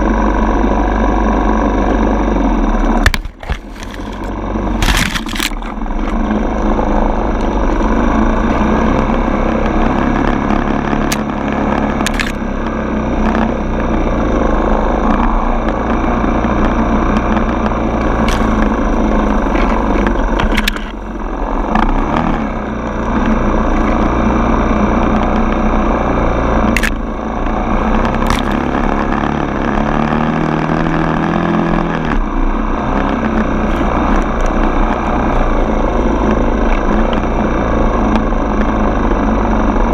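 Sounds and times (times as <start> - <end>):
dirt bike engine revving: 0.0 - 39.9
sharp clicks: 10.2 - 13.5, 26.7 - 27.0.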